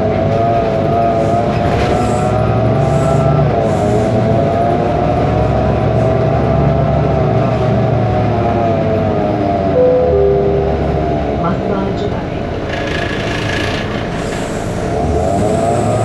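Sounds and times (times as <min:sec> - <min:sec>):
bus diesel engine droning: 0:00.0 - 0:16.0
engine whine: 0:00.0 - 0:16.0.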